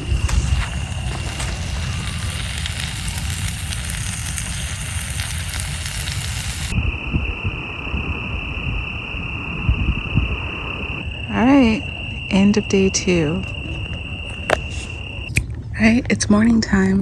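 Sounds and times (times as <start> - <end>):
campfire crackling and popping: 0.0 - 6.8
crickets chirring: 0.0 - 15.5
low rumble: 0.0 - 17.0.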